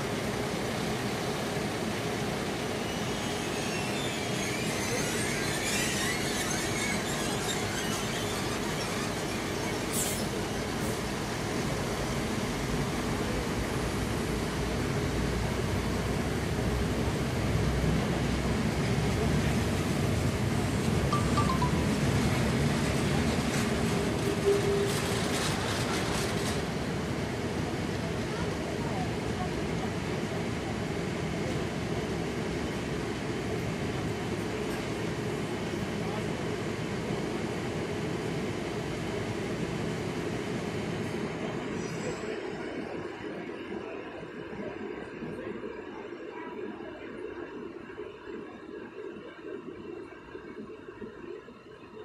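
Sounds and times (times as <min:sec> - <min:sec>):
train wagons rumbling on rails: 0:00.1 - 0:42.9
faint wheel squeals: 0:02.8 - 0:10.4
brief high tone: 0:21.1 - 0:22.4.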